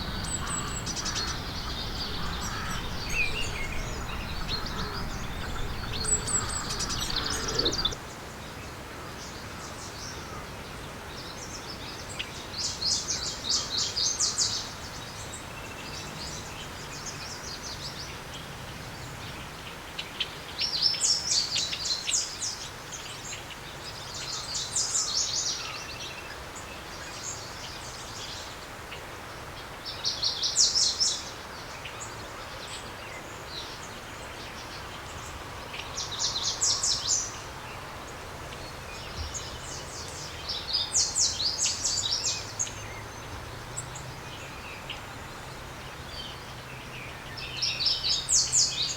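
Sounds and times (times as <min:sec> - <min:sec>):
songbirds chirping trilled bursts: 0:00.0 - 0:08.0
steady outdoor hiss: 0:00.0 - 0:48.9.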